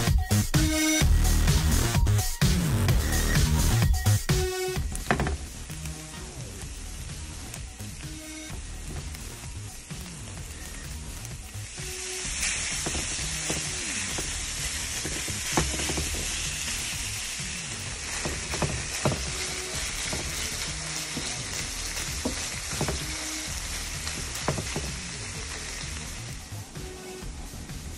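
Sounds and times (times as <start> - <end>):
food sizzling in frying pan: 2.6 - 27.8.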